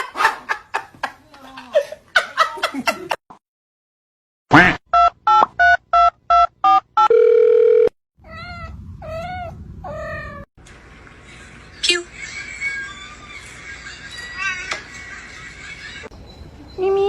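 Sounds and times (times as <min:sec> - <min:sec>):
steady telephone tone: 0:07.0 - 0:08.0.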